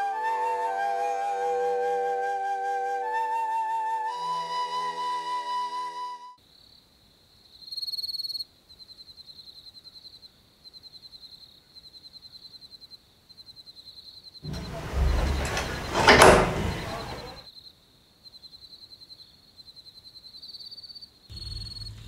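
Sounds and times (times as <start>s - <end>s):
held flute note: 0.0s - 6.4s
crickets chirping: 6.4s - 22.0s
sudden loud noise: 21.3s - 22.0s.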